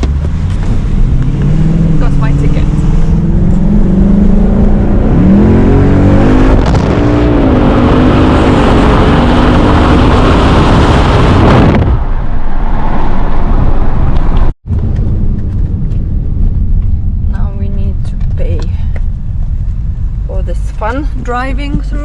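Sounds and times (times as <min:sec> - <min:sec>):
car engine accelerating: 0:00.0 - 0:17.4
rushing wind and road noise: 0:00.0 - 0:22.0.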